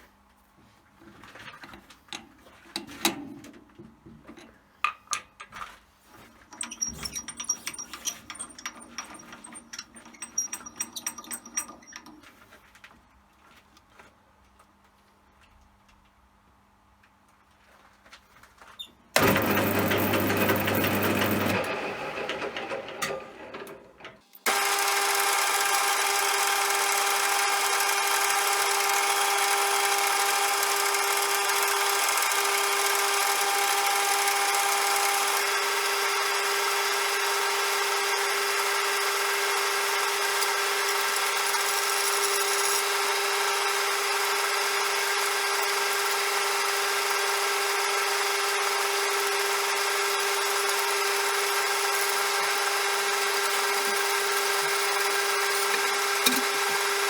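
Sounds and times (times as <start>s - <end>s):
metal lathe whining: 6.5s - 12.2s, 19.2s - 23.7s, 24.5s - 57.0s.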